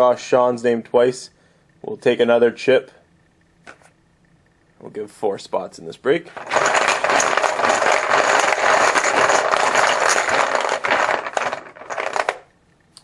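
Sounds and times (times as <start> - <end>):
chips rattling in a bucket: 6.3 - 12.5.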